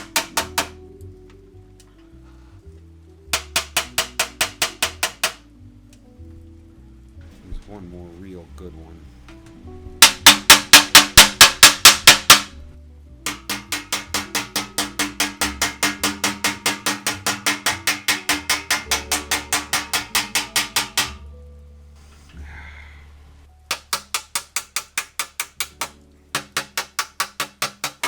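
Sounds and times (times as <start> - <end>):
hammer tapping on brass tubing: 0.0 - 0.8, 3.4 - 5.5, 10.0 - 12.6, 13.3 - 21.3, 23.7 - 28.0.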